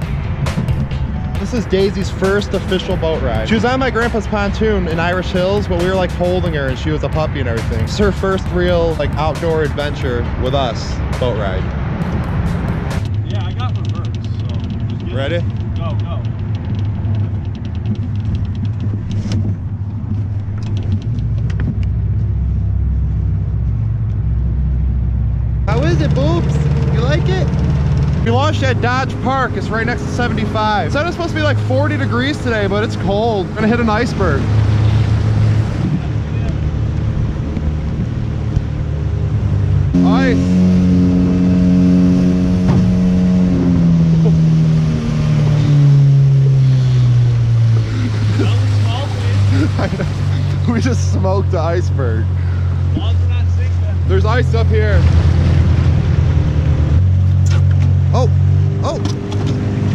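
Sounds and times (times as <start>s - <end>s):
motorboat engine droning: 0.0s - 59.9s
sharp clicks: 12.9s - 22.0s.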